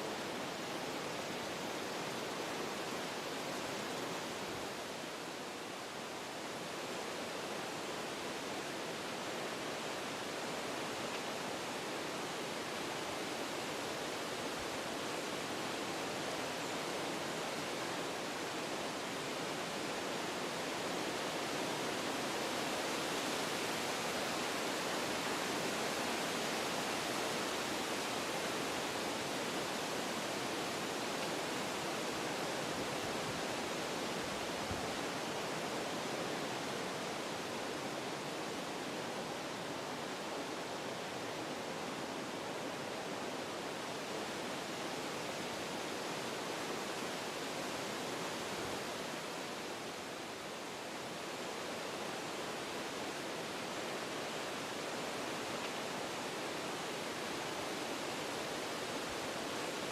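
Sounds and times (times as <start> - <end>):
wind blowing through trees: 0.0 - 59.9.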